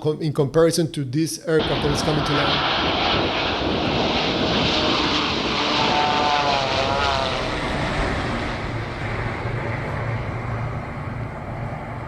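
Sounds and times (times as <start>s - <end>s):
jet airliner flying past: 1.6s - 12.0s
wavering whine: 1.6s - 12.0s.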